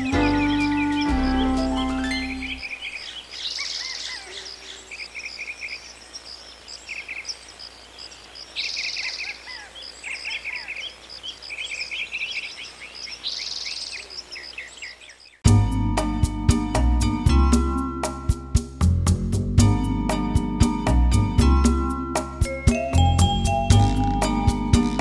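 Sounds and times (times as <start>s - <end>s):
bird rapid trill: 0.0s - 5.5s
small birds chirping: 0.0s - 15.4s.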